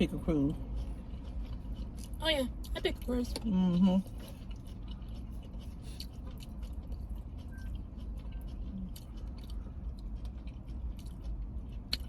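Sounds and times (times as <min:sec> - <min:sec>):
chewing and wet mouth sounds: 0:00.0 - 0:12.0
low steady hum: 0:00.0 - 0:12.0.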